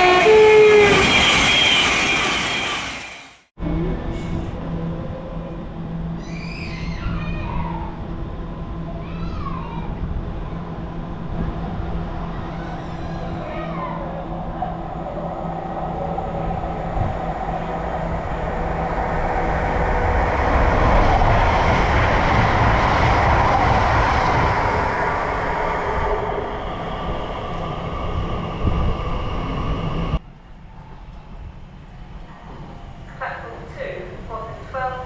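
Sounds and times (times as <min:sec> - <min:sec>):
train wheels passing: 0:00.0 - 0:03.5, 0:10.6 - 0:35.0.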